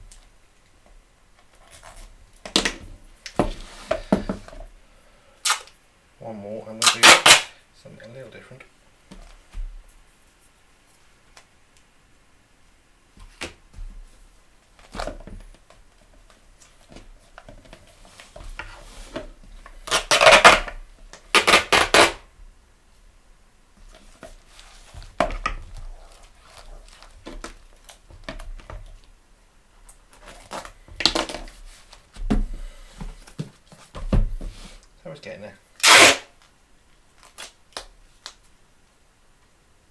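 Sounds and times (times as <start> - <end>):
knocks and rustles of handling: 0.0 - 4.8, 13.1 - 22.1, 23.7 - 35.0
tape pulled off a roll: 5.4 - 5.8, 6.8 - 7.5, 18.0 - 22.3, 35.8 - 36.6.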